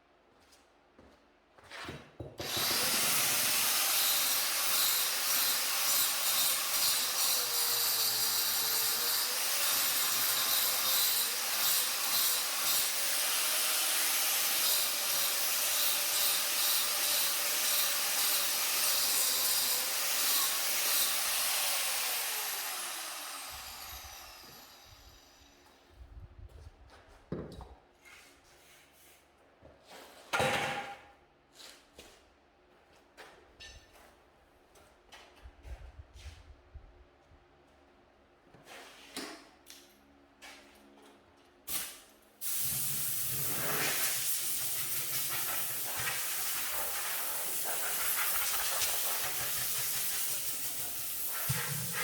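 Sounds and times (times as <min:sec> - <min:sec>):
electric power tool running: 0:12.7 - 0:25.4.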